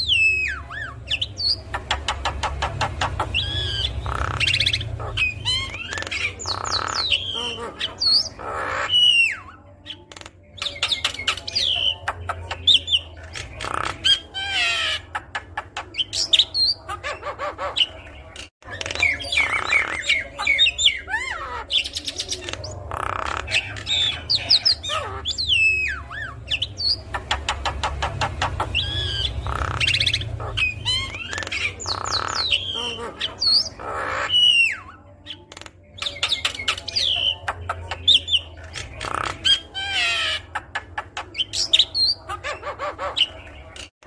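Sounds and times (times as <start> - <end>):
bird singing whistles and trills: 0.0 - 1.9.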